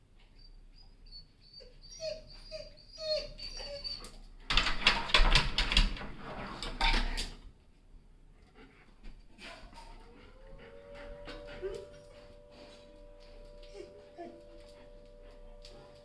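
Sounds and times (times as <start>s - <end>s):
dog whimpering: 0.8s - 4.2s, 9.4s - 16.0s
rustling and knocks: 4.5s - 7.4s.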